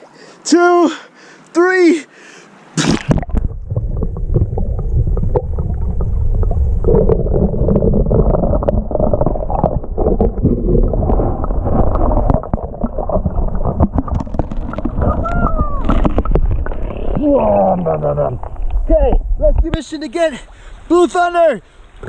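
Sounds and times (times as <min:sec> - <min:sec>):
water splash: 0:02.8 - 0:18.9
underwater creek rumble: 0:02.8 - 0:20.7.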